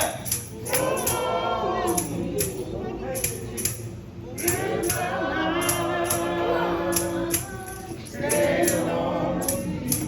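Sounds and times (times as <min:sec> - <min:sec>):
gospel singing: 0:00.0 - 0:10.0.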